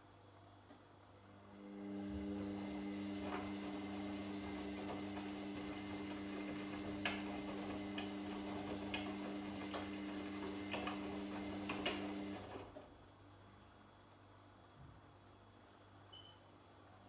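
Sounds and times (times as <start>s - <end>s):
washing machine motor hum: 1.2s - 13.0s.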